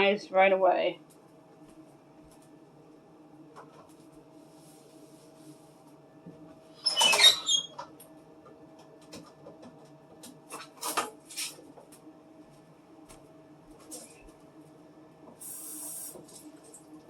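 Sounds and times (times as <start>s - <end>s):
plastic scraping shelf with squeak: 6.8s - 7.8s.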